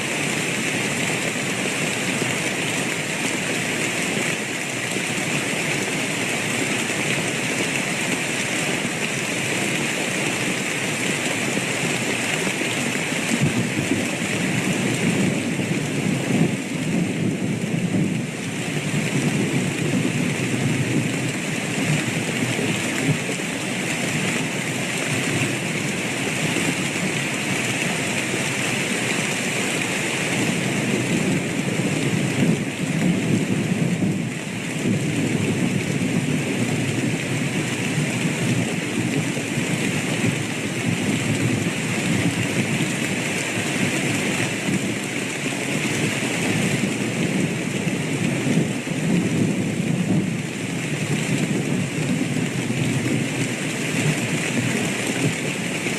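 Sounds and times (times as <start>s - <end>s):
heavy rain: 0.0s - 55.9s
low rumble of thunder: 13.3s - 23.3s.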